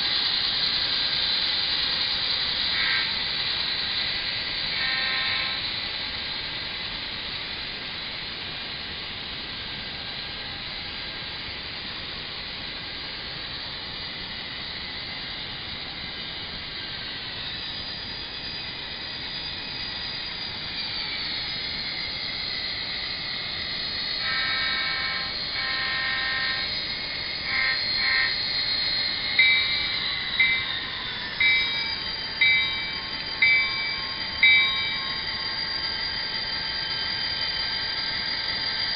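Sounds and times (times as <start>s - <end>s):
locomotive horn blasts: 2.8s - 3.2s, 4.7s - 5.6s, 24.2s - 26.6s, 27.5s - 28.4s
bell ringing: 29.4s - 35.3s.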